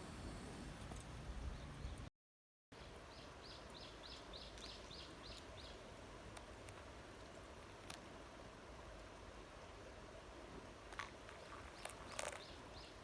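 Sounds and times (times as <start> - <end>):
faint outdoor hiss: 0.0 - 2.1, 2.8 - 13.0
bird chirping: 3.1 - 5.9, 11.6 - 13.0.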